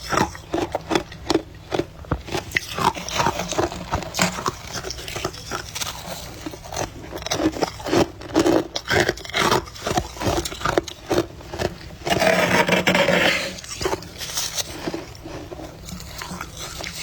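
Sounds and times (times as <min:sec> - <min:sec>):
frost being crunched and scraped: 0:09.4 - 0:17.0.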